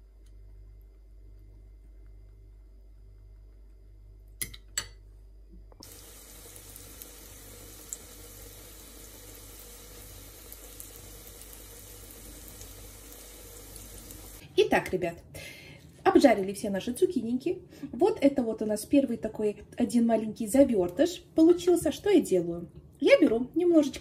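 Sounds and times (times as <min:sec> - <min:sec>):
eggplant slices frying in oil: 0:05.8 - 0:14.4.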